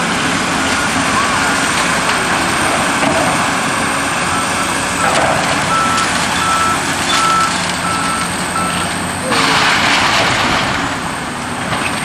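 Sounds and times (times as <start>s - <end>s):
heavy equipment working: 0.0s - 12.0s
backup alarm beeping: 4.2s - 9.5s.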